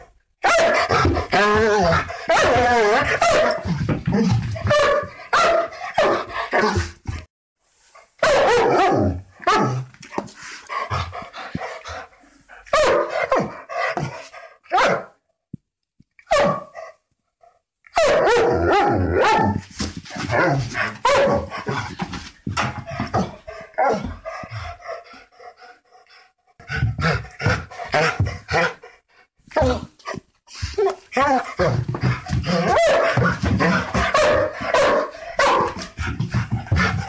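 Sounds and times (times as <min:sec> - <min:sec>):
dogs barking: 0:00.4 - 0:01.3, 0:02.3 - 0:03.7, 0:04.6 - 0:06.8, 0:08.2 - 0:09.8, 0:12.7 - 0:14.0, 0:14.7 - 0:15.1, 0:16.3 - 0:16.8, 0:18.0 - 0:19.6, 0:21.0 - 0:21.6, 0:32.3 - 0:35.8.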